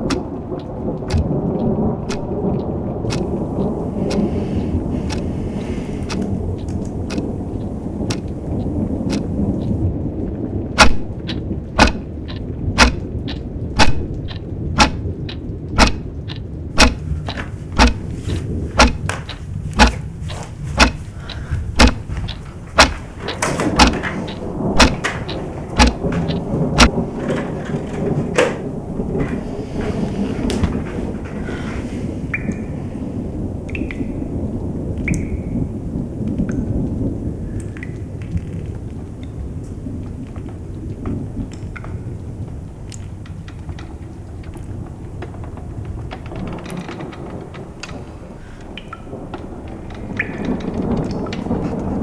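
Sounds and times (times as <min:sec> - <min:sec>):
continuous low rumble: 0:00.0 - 0:52.0
sharp knocks: 0:03.1 - 0:09.8, 0:11.8 - 0:12.0, 0:12.8 - 0:13.1, 0:13.8 - 0:14.0, 0:14.8 - 0:15.0, 0:15.8 - 0:16.0, 0:16.8 - 0:32.6.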